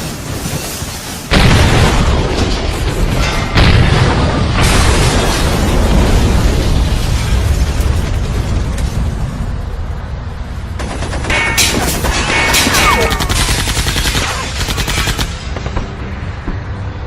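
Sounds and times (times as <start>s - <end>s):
continuous low rumble: 0.0s - 17.0s
rapid automatic gunfire: 12.8s - 15.8s.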